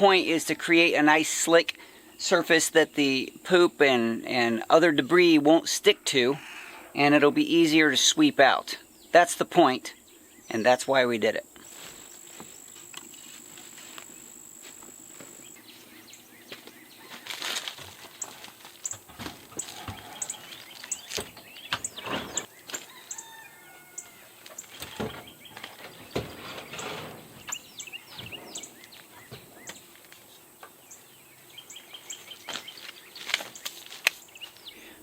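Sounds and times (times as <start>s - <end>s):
insect trilling: 0.0s - 25.8s
small birds chirping: 8.7s - 10.9s, 15.4s - 35.0s
rustling: 16.5s - 21.4s, 32.0s - 34.7s.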